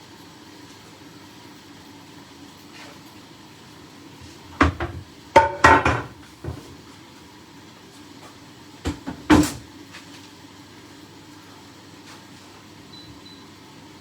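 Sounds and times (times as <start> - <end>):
low appliance hum: 0.0 - 14.0
kitchen knocks and clanks: 4.5 - 6.7, 8.8 - 9.7.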